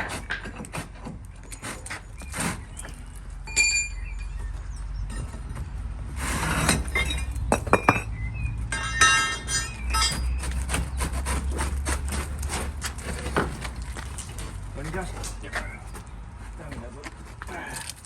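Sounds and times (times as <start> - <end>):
ringing clatter: 3.4 - 4.4, 6.6 - 10.6
hard objects clinking and knocking: 6.6 - 11.0.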